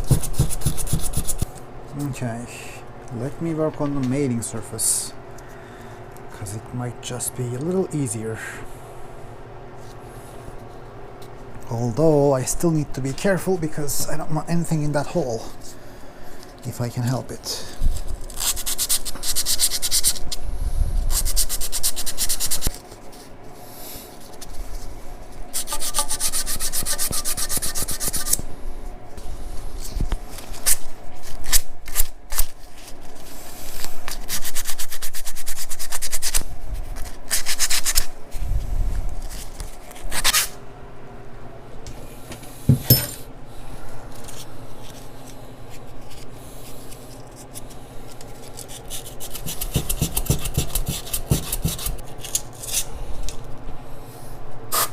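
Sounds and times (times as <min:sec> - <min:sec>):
sandpaper rubbing on metal: 0:00.0 - 0:01.4, 0:18.3 - 0:20.3, 0:21.1 - 0:22.7, 0:25.5 - 0:28.4, 0:34.1 - 0:36.4, 0:37.0 - 0:38.1, 0:48.5 - 0:52.8
sharp knocks of metal part: 0:42.7 - 0:43.2.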